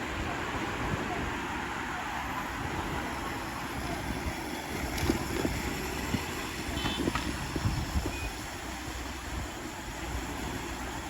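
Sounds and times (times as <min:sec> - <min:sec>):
road rumble: 0:00.0 - 0:11.0
wind on microphone: 0:03.8 - 0:08.4.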